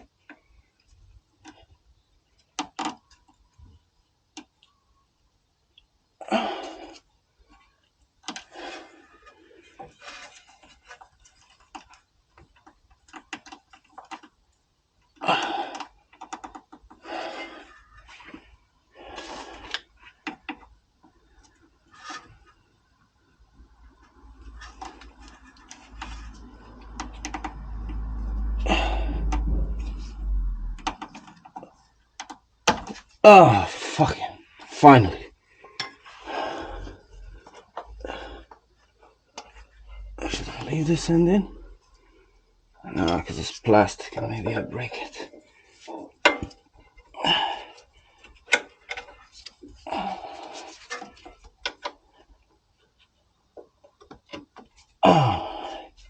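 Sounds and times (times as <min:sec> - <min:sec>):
low rumbling noise: 0:27.5 - 0:30.9.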